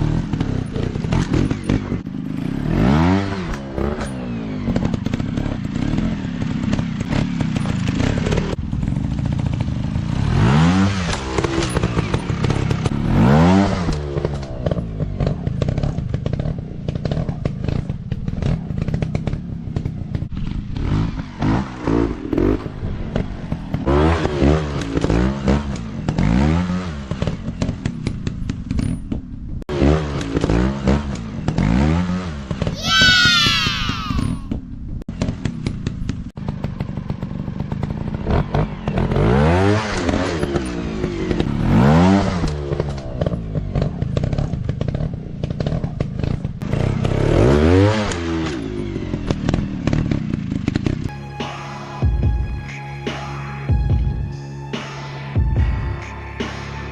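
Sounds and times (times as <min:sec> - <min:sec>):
dirt bike engines revving: 0:00.0 - 0:28.0, 0:29.7 - 0:34.6.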